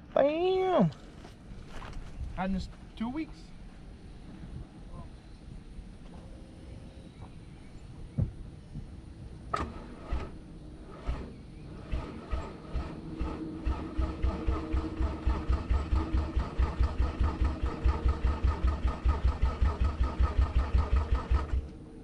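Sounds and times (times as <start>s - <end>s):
starter motor cranking engine: 9.5s - 21.8s.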